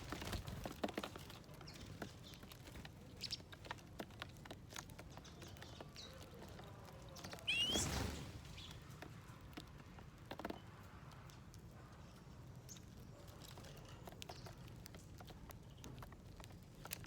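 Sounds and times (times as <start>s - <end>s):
birds pecking at seeds: 0.0s - 17.0s
rustling of birds: 0.0s - 17.0s
bird chirp: 7.2s - 8.9s.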